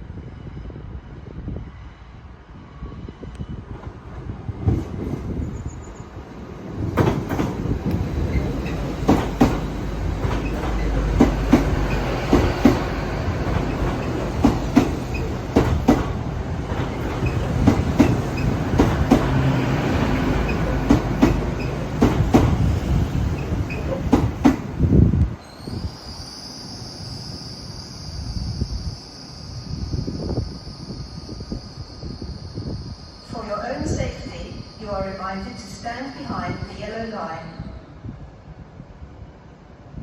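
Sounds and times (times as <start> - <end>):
train wheels rumbling on rails: 0.0 - 26.3
wheels clacking over rail joints: 6.9 - 24.8.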